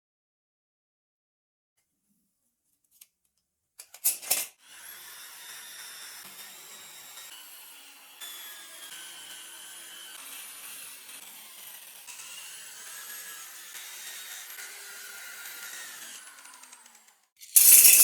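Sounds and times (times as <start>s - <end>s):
abrasive tool scraping steel: 3.8s - 4.6s, 17.4s - 18.0s.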